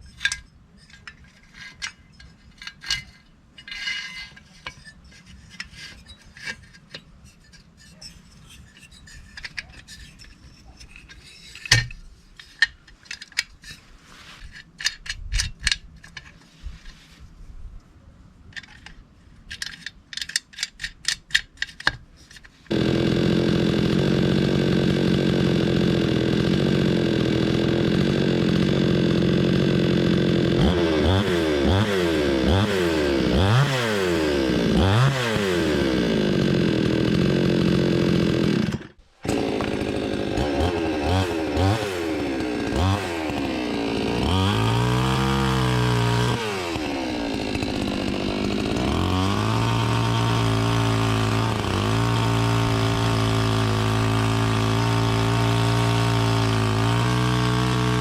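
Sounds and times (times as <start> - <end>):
clicks and knocks of handling: 0.1 - 13.8, 14.4 - 17.0, 18.5 - 22.7
chainsaw engine running and revving: 22.7 - 58.0.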